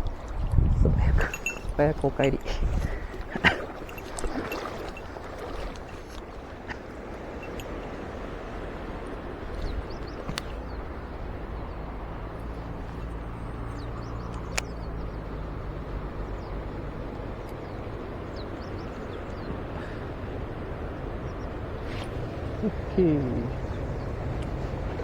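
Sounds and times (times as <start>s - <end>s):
mountain stream rushing: 1.2s - 13.0s
sharp clicks: 14.3s - 14.8s.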